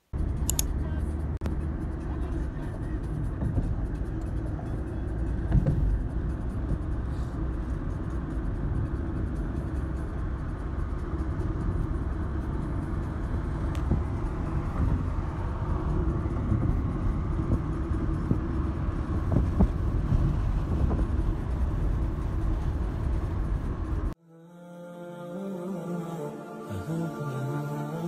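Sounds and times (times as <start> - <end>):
car rumble: 0.0 - 24.2
person singing: 24.2 - 28.0.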